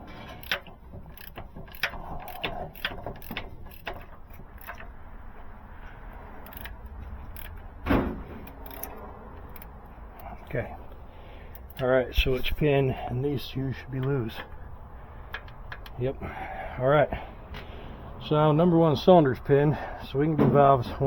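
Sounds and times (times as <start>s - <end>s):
ratchet clicking: 0.4s - 5.0s, 6.4s - 7.8s, 8.4s - 10.3s, 11.5s - 11.8s
metallic clunk: 7.4s - 9.7s.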